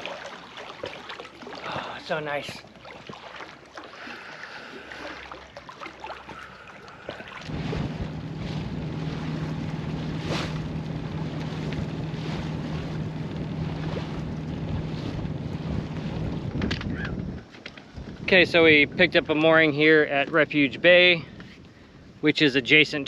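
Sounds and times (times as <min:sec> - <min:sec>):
boat engine running: 0:00.0 - 0:20.8
water noise: 0:00.0 - 0:23.0
wind buffeting microphone: 0:06.3 - 0:23.0.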